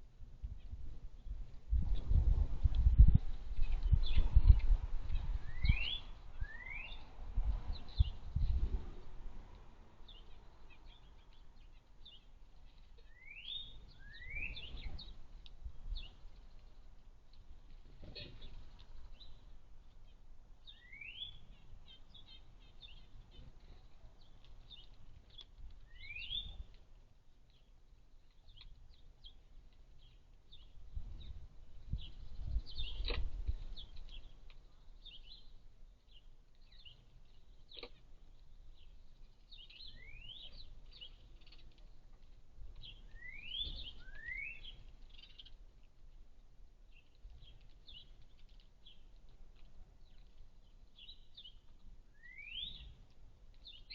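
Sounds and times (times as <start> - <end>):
sparrows chirping: 3.0 - 53.9.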